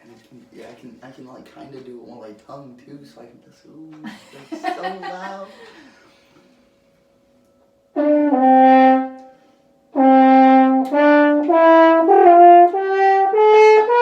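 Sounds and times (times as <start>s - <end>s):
french horn playing: 7.9s - 14.0s.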